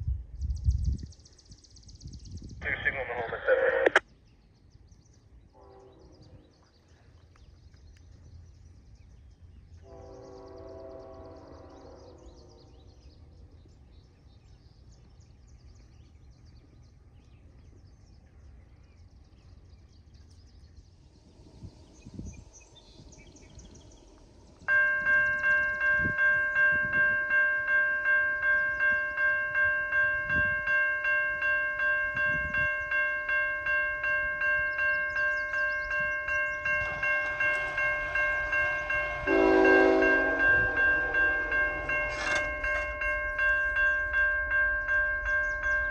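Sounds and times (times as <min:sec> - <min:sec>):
level crossing warning bell: 0:23.0 - 0:45.9.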